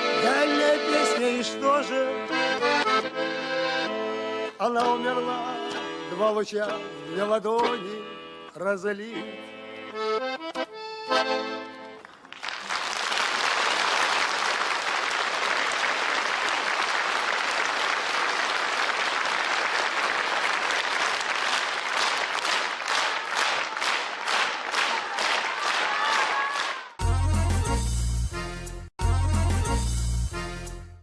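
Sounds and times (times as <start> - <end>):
accordion chords: 0.0 - 12.2, 27.0 - 31.0
audience applauding: 11.9 - 27.0.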